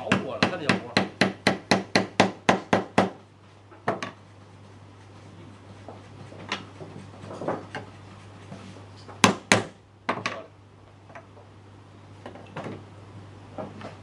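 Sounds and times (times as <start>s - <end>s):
woodworking tools knocking on wood: 0.0s - 4.2s, 5.9s - 7.9s, 9.1s - 10.5s.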